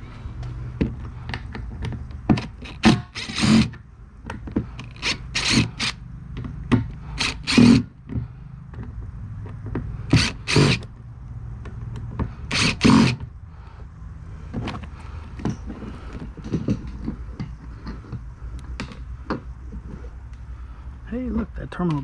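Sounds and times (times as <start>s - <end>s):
steady low hum: 0.0s - 22.0s
harsh scrapes on fittings: 2.4s - 3.8s, 4.8s - 6.0s, 7.0s - 7.9s, 10.1s - 10.9s, 12.5s - 13.3s.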